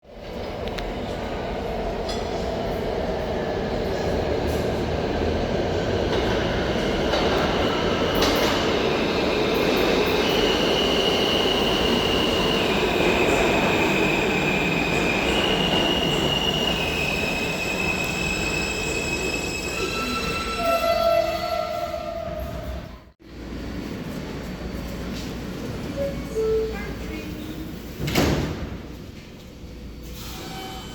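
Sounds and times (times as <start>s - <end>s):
subway train rumbling: 0.0s - 30.9s
train wheels squealing: 10.2s - 21.4s, 30.1s - 30.9s.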